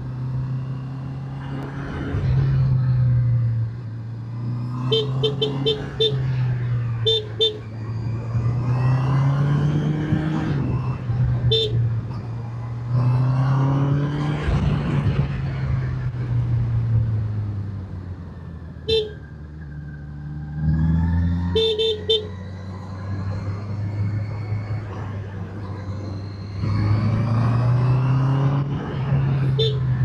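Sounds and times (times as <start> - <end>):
horn beeps: 4.8 - 6.3, 29.6 - 30.0.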